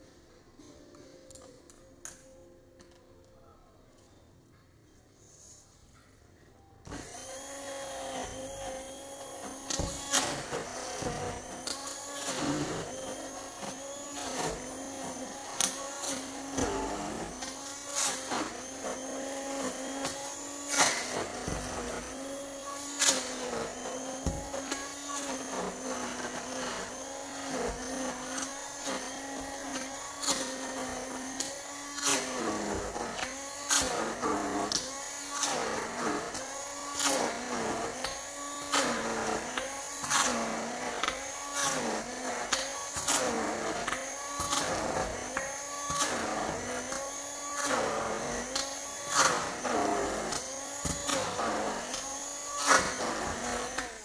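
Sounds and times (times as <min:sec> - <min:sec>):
electric mixer motor running: 0:06.9 - 0:54.0.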